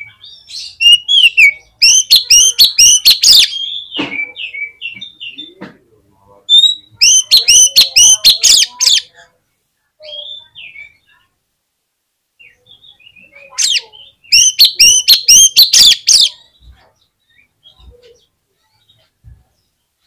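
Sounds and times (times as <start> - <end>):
bird singing whistled notes: 12.4 - 16.4.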